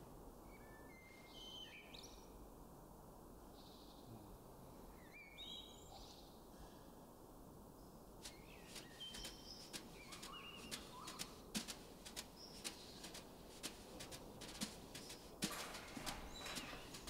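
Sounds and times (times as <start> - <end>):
faint courtyard ambience: 0.0 - 17.0
bird chirps: 8.3 - 13.7, 14.5 - 17.0.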